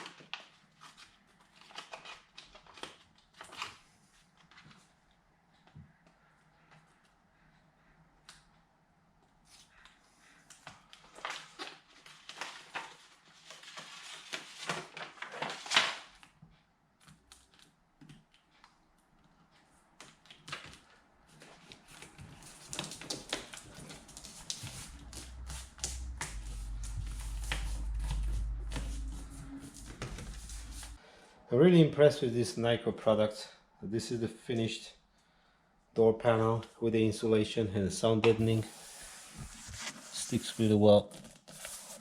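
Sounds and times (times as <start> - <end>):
taps clicks and crinkling of mat: 14.7 - 28.6
low rumble: 23.5 - 31.0.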